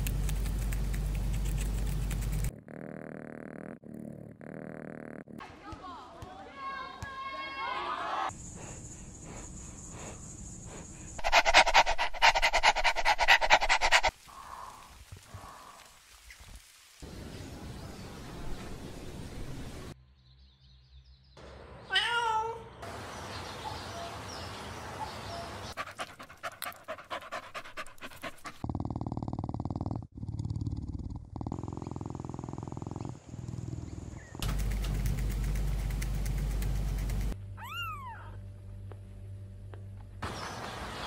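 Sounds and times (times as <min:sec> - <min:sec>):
rapid clicking: 0:34.4 - 0:37.4
kitten mewing: 0:37.6 - 0:38.4.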